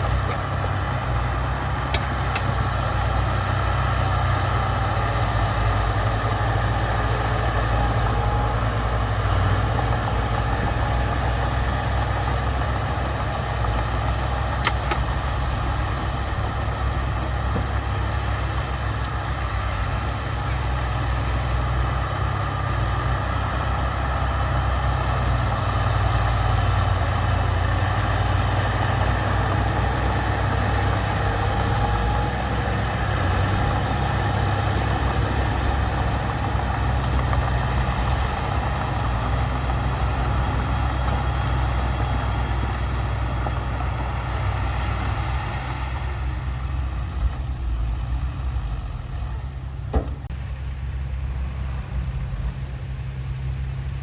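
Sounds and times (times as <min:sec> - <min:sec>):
heavy machinery diesel engine: 0:00.0 - 0:54.0.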